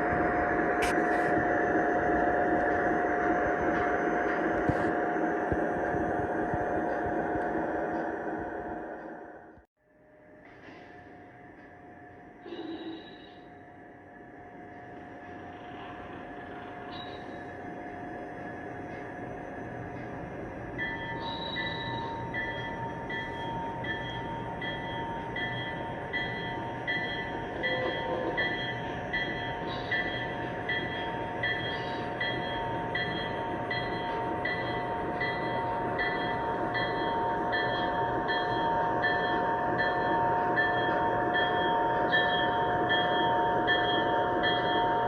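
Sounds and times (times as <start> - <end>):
model train running with whine: 11.1 - 45.0
bell-like ringing: 20.8 - 45.0.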